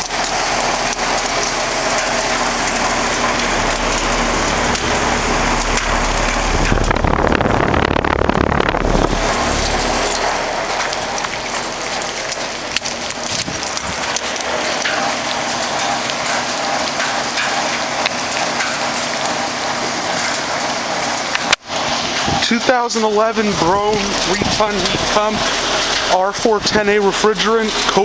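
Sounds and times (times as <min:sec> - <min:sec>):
low rumble: 0:00.0 - 0:14.5
heat pump humming: 0:00.0 - 0:28.0
heavy rain falling: 0:00.0 - 0:28.0.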